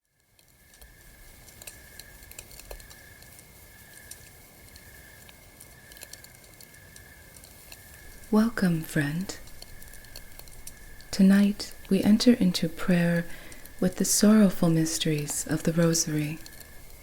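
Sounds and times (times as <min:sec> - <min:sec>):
campfire crackling: 0:00.0 - 0:17.0
steady high-pitched tone: 0:08.1 - 0:17.0.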